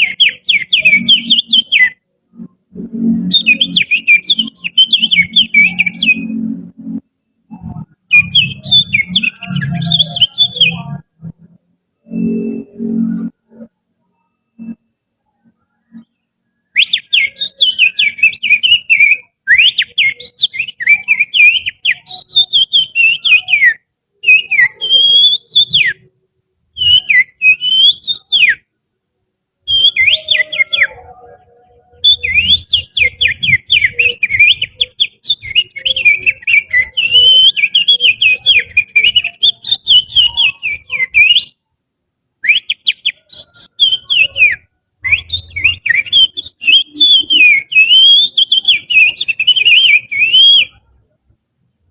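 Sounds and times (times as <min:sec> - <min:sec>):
finger whistling birdsong: 0:00.0 - 0:02.0, 0:03.2 - 0:06.4, 0:07.5 - 0:11.0, 0:16.7 - 0:26.1, 0:26.8 - 0:28.6, 0:29.7 - 0:31.0, 0:31.9 - 0:41.6, 0:42.4 - 0:50.8.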